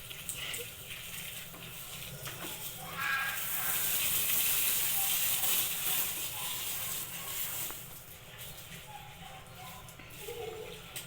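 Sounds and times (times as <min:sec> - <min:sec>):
water pouring onto sawdust: 0:00.0 - 0:08.4.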